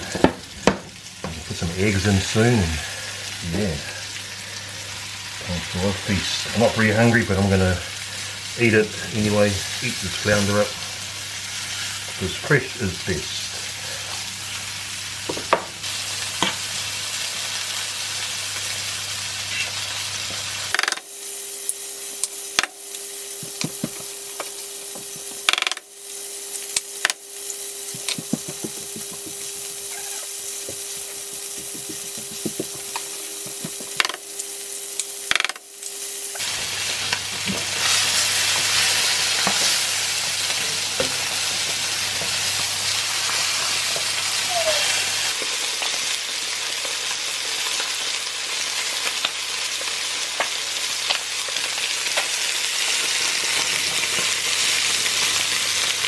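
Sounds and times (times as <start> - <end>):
fish and eggs sizzling in oil: 0.0 - 56.0
steady hum: 21.2 - 41.2
utensils knocking against pans: 31.0 - 34.2.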